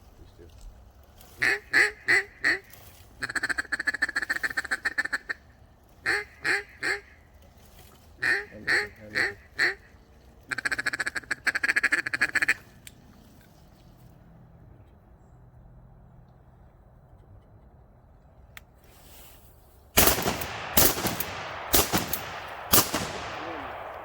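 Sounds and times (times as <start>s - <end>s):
duck call feed chatter: 1.3s - 5.4s, 6.0s - 7.2s, 8.2s - 9.9s, 10.5s - 12.7s
duck call quacks: 1.4s - 5.4s, 6.0s - 7.2s, 8.2s - 9.9s, 10.5s - 12.7s.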